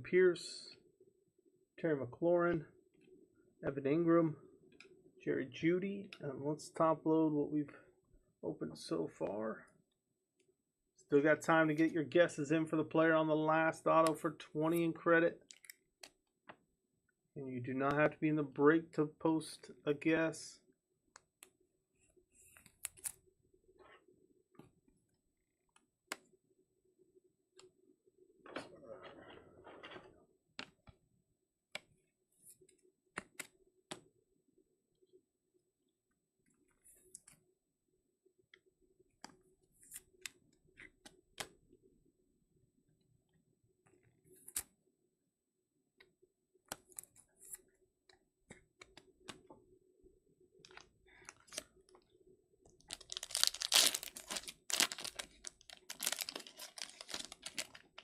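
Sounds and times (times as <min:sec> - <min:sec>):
soft rustles of cards: 0:21.2 - 0:26.3, 0:31.8 - 0:34.1, 0:36.4 - 0:37.4, 0:46.6 - 0:49.6, 0:50.5 - 0:58.0
plastic packaging clicks: 0:52.9 - 0:58.0
trading cards handled: 0:52.9 - 0:58.0.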